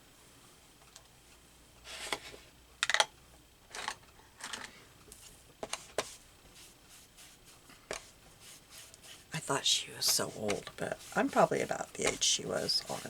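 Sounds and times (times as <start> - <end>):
paper rustling and tapping: 10.0 - 13.0.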